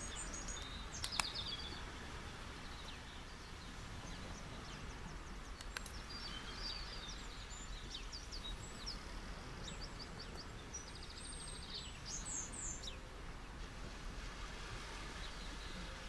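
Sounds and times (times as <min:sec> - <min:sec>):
small birds chirping: 0:00.0 - 0:13.1
beach waves washing: 0:08.1 - 0:16.0.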